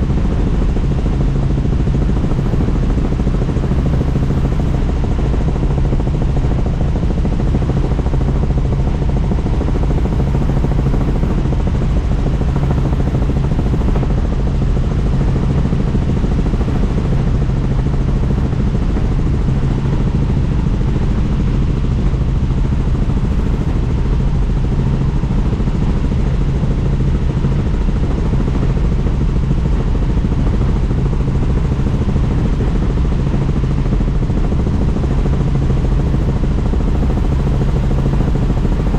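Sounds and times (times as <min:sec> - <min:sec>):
helicopter rotor and engine noise: 0:00.0 - 0:38.9.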